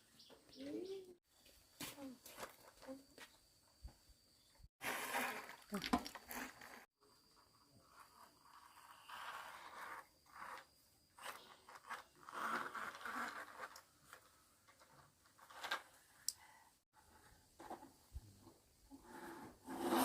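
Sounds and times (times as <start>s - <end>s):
rustling and scraping: 4.8s - 6.9s.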